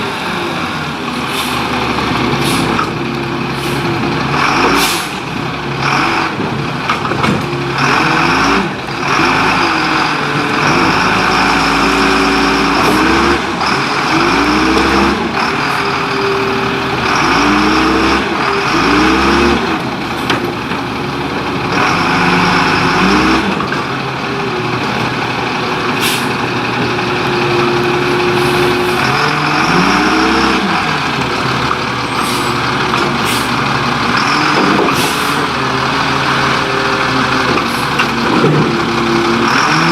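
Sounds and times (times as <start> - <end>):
garbage truck engine revving: 0.0 - 39.9
air brake hissing: 1.2 - 2.8, 3.6 - 3.9, 4.8 - 5.2, 26.0 - 26.4, 32.2 - 32.6, 33.2 - 33.6, 34.9 - 35.5.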